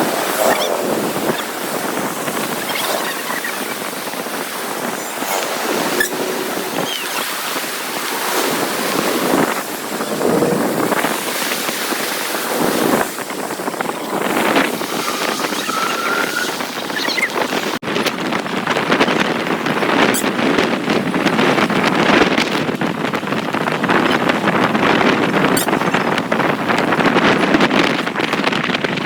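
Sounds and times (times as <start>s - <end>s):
floodwater rushing and splashing: 0.0s - 18.4s
wind buffeting microphone: 0.0s - 29.0s.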